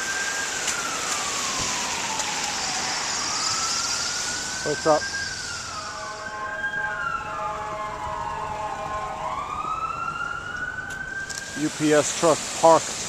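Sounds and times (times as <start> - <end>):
fire truck siren wailing: 0.0 - 13.0
steady horn-like tone: 5.7 - 9.2.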